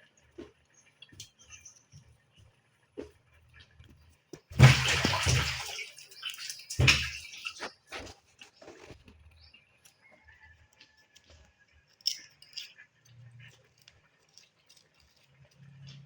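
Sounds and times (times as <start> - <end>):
water splashing: 4.5 - 8.1
small clinks: 11.9 - 15.3.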